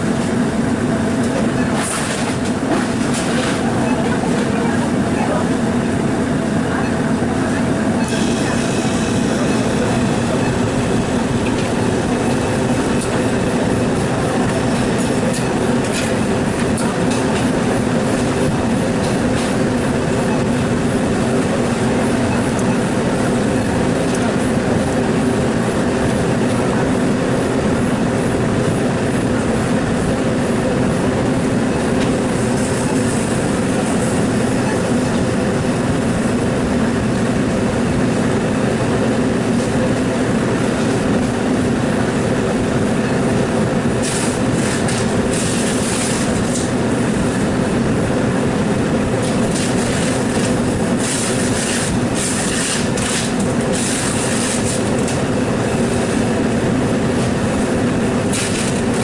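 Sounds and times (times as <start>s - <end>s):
loud mechanical hum: 0.0s - 59.0s.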